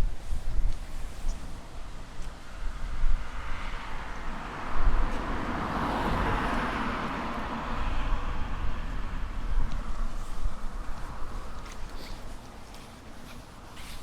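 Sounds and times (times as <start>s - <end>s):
car passing by: 2.2s - 12.5s.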